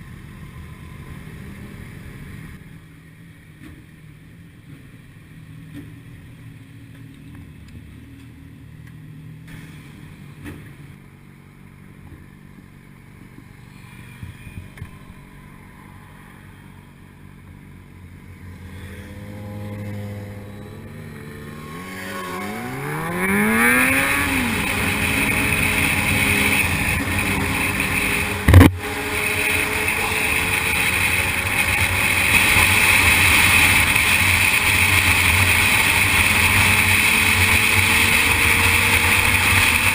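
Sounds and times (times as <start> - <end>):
motorcycle engine revving: 18.4 - 39.9
wind noise at speed: 22.2 - 39.9.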